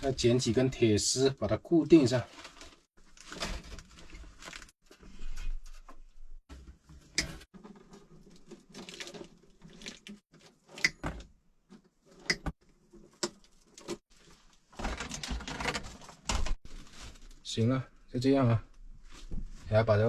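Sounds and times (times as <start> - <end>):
rustling and handling noise: 1.9 - 19.8.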